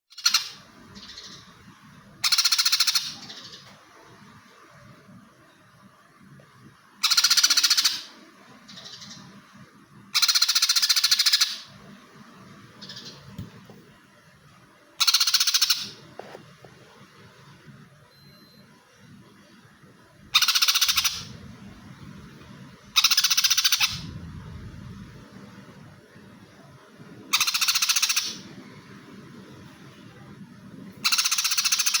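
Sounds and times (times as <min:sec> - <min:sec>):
bird chattering song: 0:00.1 - 0:01.6, 0:02.2 - 0:03.7, 0:07.0 - 0:09.4, 0:10.2 - 0:11.7, 0:12.8 - 0:13.3, 0:15.0 - 0:16.0, 0:20.4 - 0:21.4, 0:23.0 - 0:24.2, 0:27.3 - 0:28.4, 0:31.0 - 0:32.0
soft bird calls: 0:12.7 - 0:13.6.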